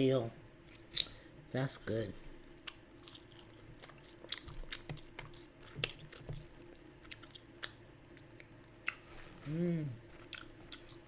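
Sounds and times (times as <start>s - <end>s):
chewing a sandwich: 2.3s - 11.0s.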